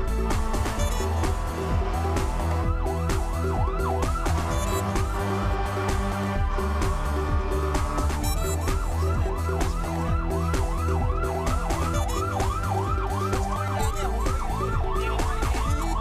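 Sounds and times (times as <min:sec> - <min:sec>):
background music with beat: 0:00.0 - 0:16.0
fire truck siren yelping: 0:00.8 - 0:05.4, 0:08.4 - 0:16.0.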